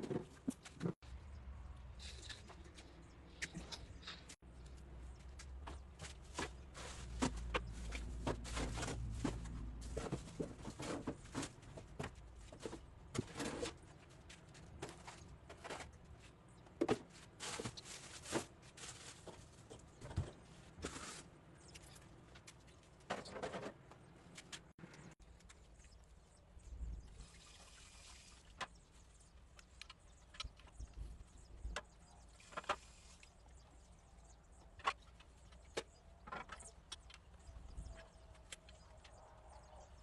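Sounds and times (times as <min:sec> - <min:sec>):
plastic shelves clattering: 0:06.0 - 0:13.9.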